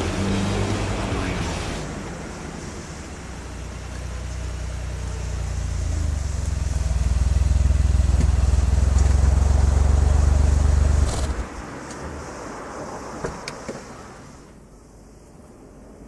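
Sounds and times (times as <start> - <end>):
car exhaust drone: 0.0 - 11.6.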